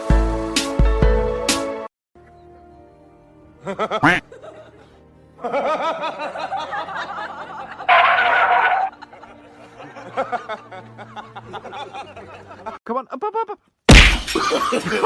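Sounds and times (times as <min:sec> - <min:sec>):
background music: 0:00.0 - 0:12.8
people laughing: 0:03.6 - 0:12.8, 0:14.3 - 0:15.0
loud shrill cry: 0:07.9 - 0:08.9.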